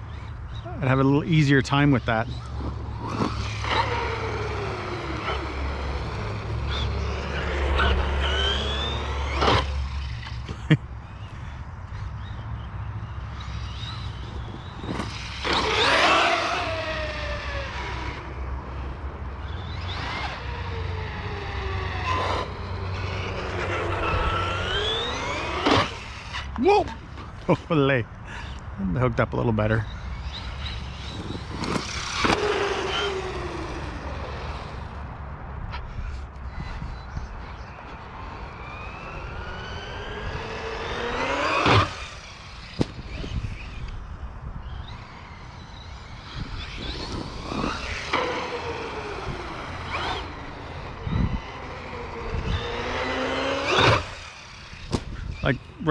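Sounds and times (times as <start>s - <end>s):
toy truck electric motor whining: 2.2s - 10.4s, 13.3s - 26.5s, 30.1s - 35.0s, 38.1s - 44.1s, 44.7s - 55.5s.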